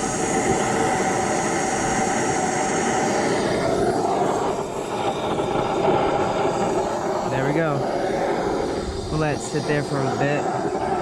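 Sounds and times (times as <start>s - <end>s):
gas forge burner rushing: 0.0s - 11.0s.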